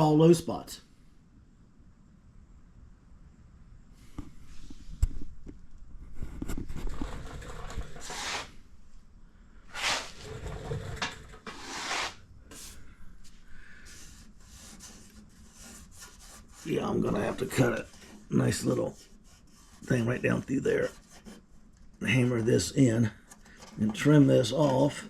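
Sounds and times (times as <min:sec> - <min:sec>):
rubbing scraping strokes: 0:06.2 - 0:08.6, 0:09.7 - 0:21.6.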